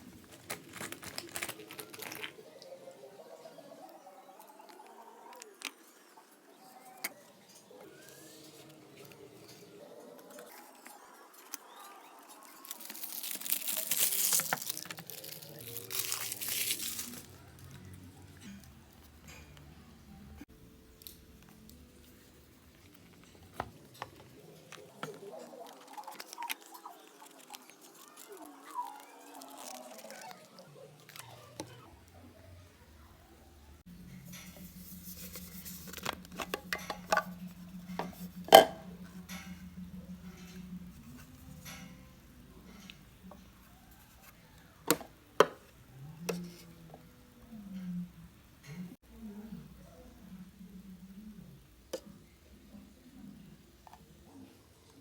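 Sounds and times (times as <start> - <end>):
crinkling and rustling: 0.0 - 2.8, 7.0 - 19.7, 21.0 - 31.8, 33.8 - 47.1.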